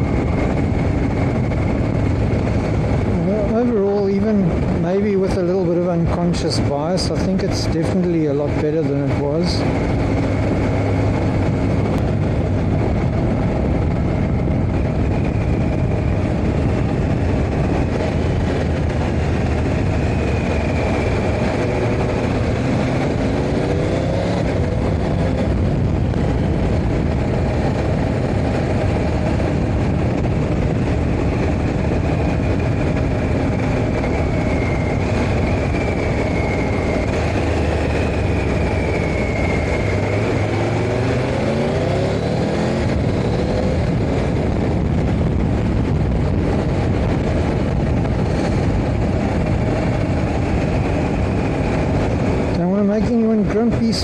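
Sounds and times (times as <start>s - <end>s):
motorcycle engine running: 0.0s - 54.0s
road and wind rushing: 0.0s - 54.0s.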